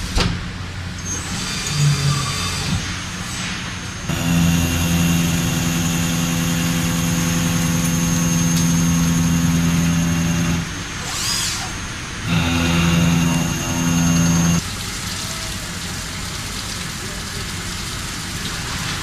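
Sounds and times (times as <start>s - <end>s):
industrial machine motor humming: 4.0s - 11.0s, 12.1s - 14.6s.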